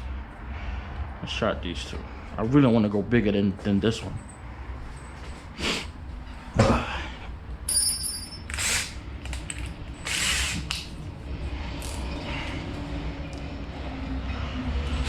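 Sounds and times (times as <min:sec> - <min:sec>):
low background hum: 0:00.0 - 0:15.0
drill chuck ratcheting and clicking: 0:08.5 - 0:10.8.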